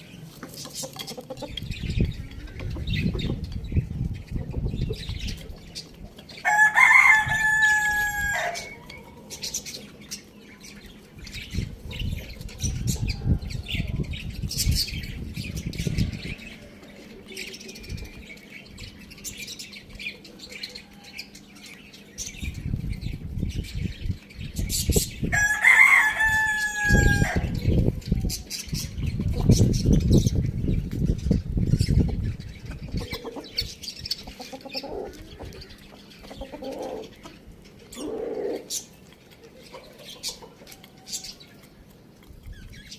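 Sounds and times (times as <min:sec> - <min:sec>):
rooster crowing: 0:06.4 - 0:08.9, 0:25.3 - 0:27.6.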